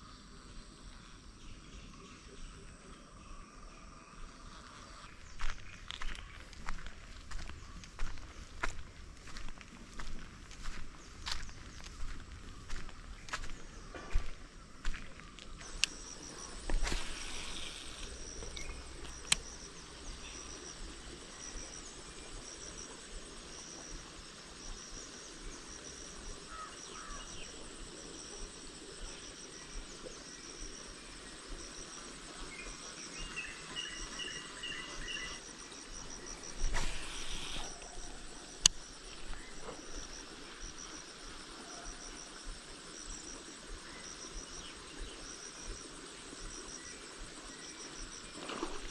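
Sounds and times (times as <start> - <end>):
insects trilling: 0.0 - 48.9
sharp clicks: 17.2 - 19.5.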